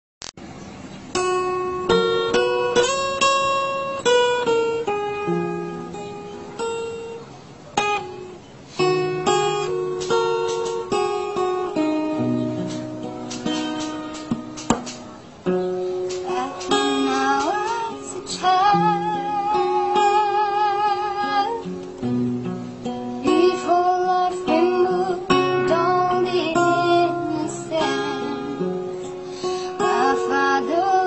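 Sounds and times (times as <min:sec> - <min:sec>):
acoustic guitar chords: 0:00.4 - 0:31.0.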